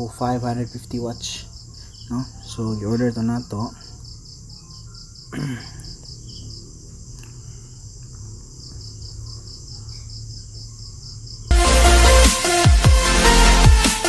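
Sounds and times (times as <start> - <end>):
crickets chirping: 0.0 - 13.9
bass-heavy electronic music: 11.5 - 14.0.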